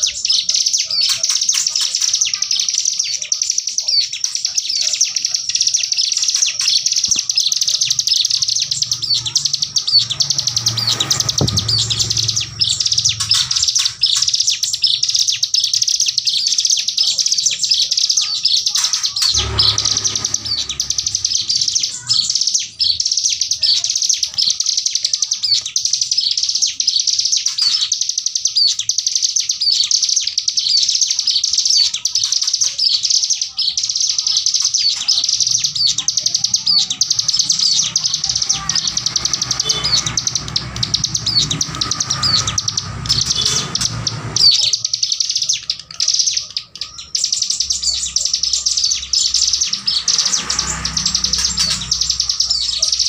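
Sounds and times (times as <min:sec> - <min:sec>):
bird rapid chirping rattle: 0:00.0 - 0:53.0
low rumble: 0:09.9 - 0:13.4.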